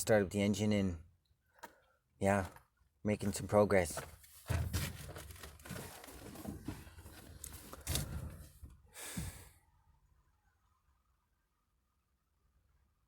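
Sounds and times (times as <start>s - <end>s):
rustling and crackling: 3.9s - 8.7s.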